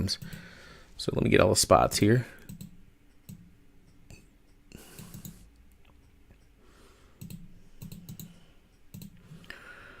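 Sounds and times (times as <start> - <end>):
mouse and keyboard clicks: 4.9 - 5.4, 7.2 - 9.2.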